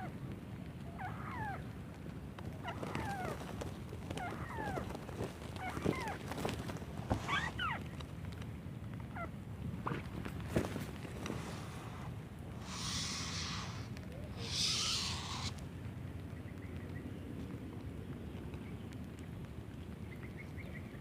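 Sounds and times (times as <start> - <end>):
faint bird calls: 0.0 - 8.0, 9.1 - 16.9
low background noise: 0.0 - 21.0
loud hissing rustle: 10.6 - 15.8.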